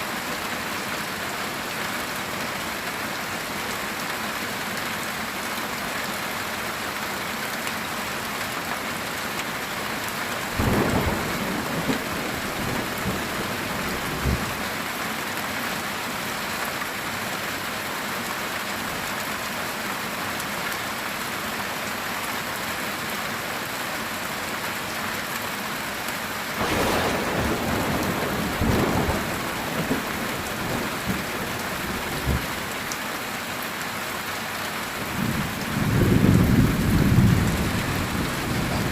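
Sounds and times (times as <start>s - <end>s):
heavy rain on a tin roof: 0.0s - 38.9s
thunder cracking: 26.6s - 32.5s.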